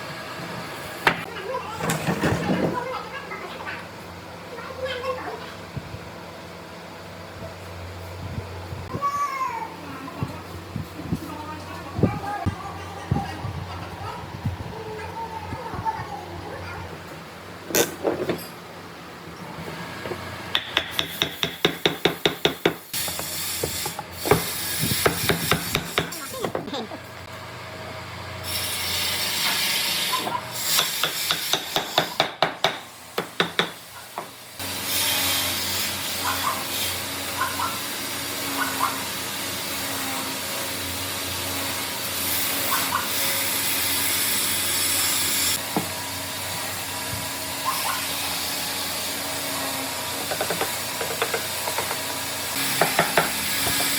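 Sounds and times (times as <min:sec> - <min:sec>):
power tool humming: 0:34.6 - 0:53.9.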